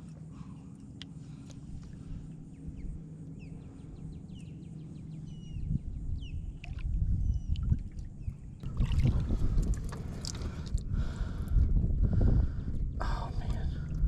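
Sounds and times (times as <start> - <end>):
steady low drone: 0.0 - 14.0
wind rumble on microphone: 0.0 - 14.0
birds chirping: 0.3 - 9.4.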